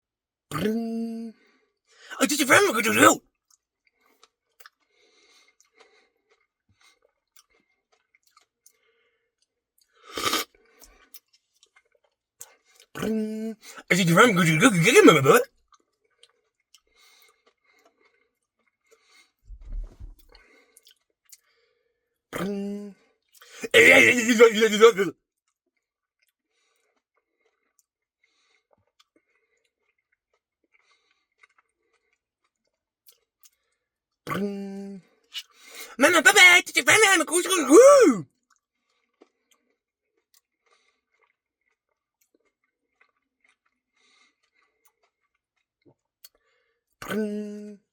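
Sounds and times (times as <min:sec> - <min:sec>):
wet chewing and lip-smacking: 0:03.5 - 0:04.9, 0:05.5 - 0:08.8, 0:10.2 - 0:13.1, 0:20.8 - 0:21.5, 0:27.4 - 0:33.7, 0:40.2 - 0:46.4
loud mouth noise: 0:23.6 - 0:25.1.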